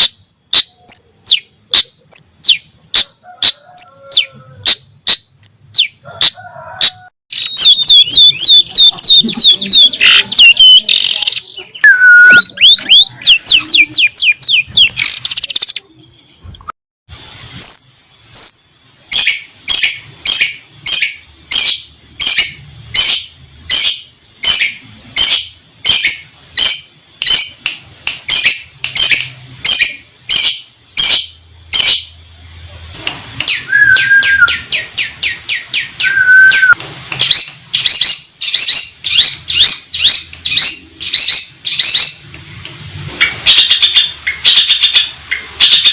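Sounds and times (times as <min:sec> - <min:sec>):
bird singing sharp chirps: 0:07.3 - 0:16.4, 0:33.5 - 0:42.2.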